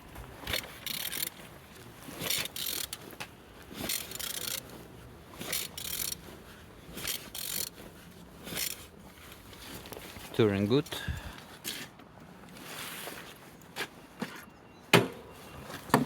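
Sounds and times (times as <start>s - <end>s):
engine turned by wrench ratcheting: 0.4s - 1.4s, 2.1s - 3.1s, 3.8s - 4.8s, 5.4s - 6.3s, 7.0s - 7.8s, 8.5s - 8.9s.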